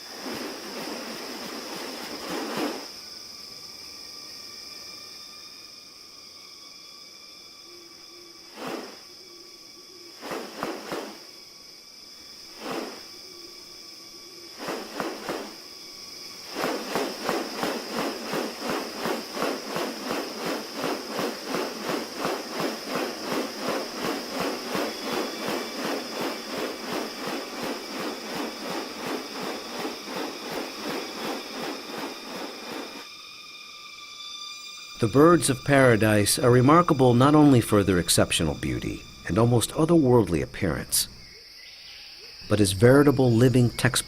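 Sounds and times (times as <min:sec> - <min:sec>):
high-pitched insect drone: 0:00.0 - 0:44.0
rapid pulsing animal calls: 0:16.4 - 0:33.0.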